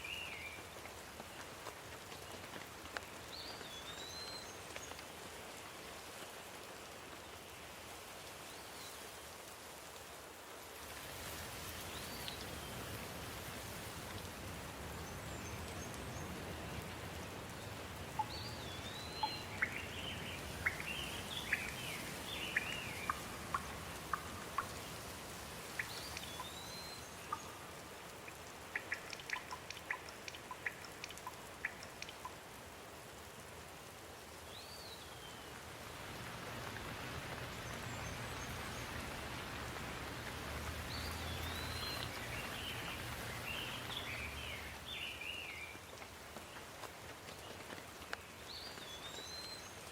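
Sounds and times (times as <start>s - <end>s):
steady rain: 0.0s - 49.9s
bird chirps: 18.2s - 24.7s.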